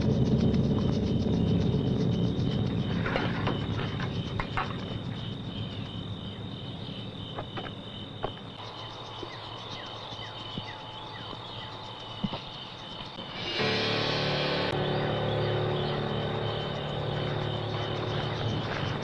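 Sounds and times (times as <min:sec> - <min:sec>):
low rumble: 0:00.0 - 0:07.4, 0:13.4 - 0:19.0
crickets chirping: 0:00.0 - 0:19.0.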